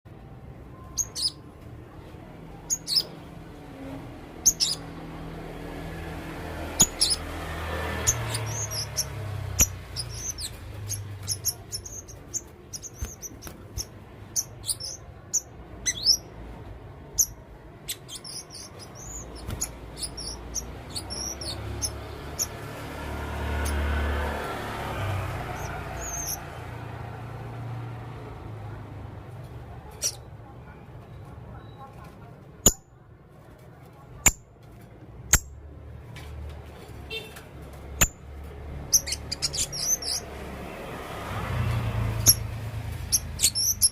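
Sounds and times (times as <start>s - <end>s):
parrot high-pitched chirps: 0.8s - 1.4s, 2.6s - 3.2s, 4.4s - 4.9s, 6.6s - 7.3s, 8.0s - 16.4s, 17.1s - 22.7s, 25.5s - 26.5s, 38.8s - 40.3s, 42.2s - 43.9s.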